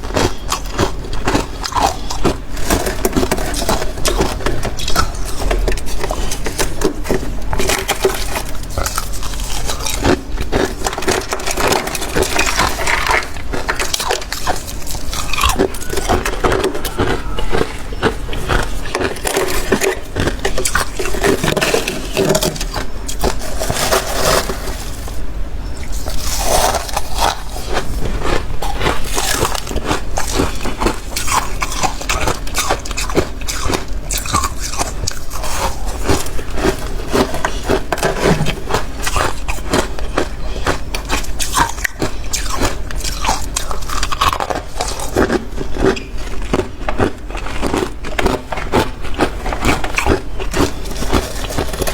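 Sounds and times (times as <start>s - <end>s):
frost being chewed: 0.0s - 51.9s.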